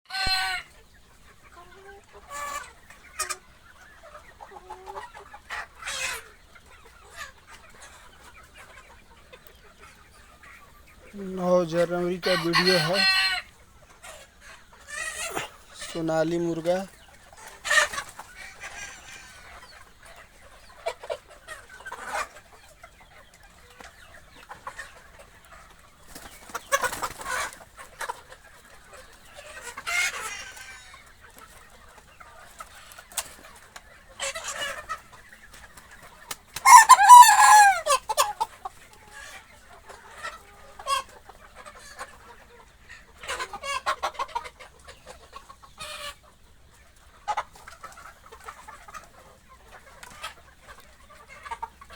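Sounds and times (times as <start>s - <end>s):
chickens clucking: 0.1s - 51.9s
rooster crowing: 12.3s - 13.5s.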